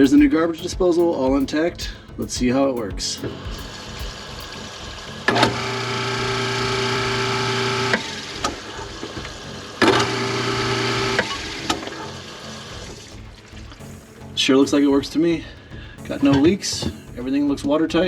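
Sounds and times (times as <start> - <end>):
garbage disposal motor humming: 3.5 - 14.0.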